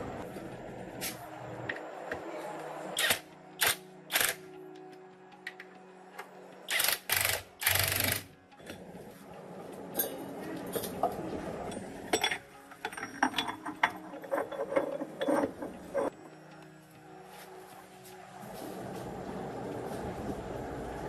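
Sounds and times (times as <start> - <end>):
metal tools clattering: 9.9 - 16.1.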